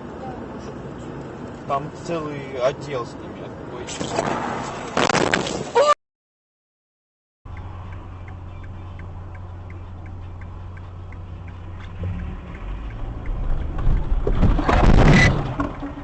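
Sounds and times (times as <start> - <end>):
car engine hum: 0.0 - 5.0, 7.5 - 16.0
road noise: 0.0 - 5.9, 7.5 - 16.0
light ticking: 7.5 - 14.4.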